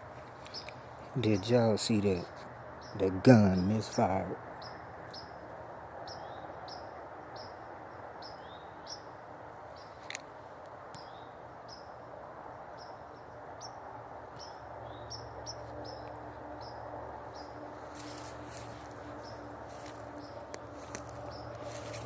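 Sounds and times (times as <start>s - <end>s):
rustle: 0.0s - 1.2s, 8.4s - 11.9s, 17.5s - 22.0s
songbird chirping: 0.0s - 10.3s, 10.9s - 12.0s, 12.6s - 22.0s
outdoor background noise: 0.0s - 22.0s.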